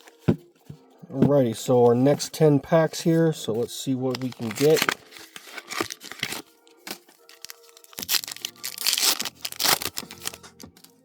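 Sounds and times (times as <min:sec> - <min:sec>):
foil wrapper crinkling and tearing: 0:04.1 - 0:10.9.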